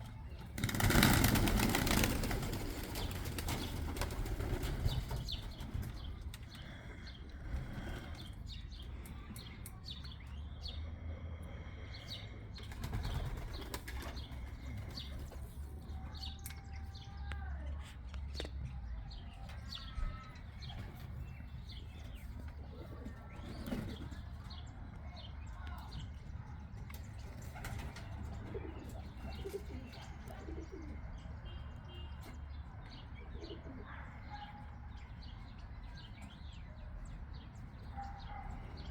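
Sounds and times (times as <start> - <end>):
pigeon wings flapping: 0.5 - 5.9.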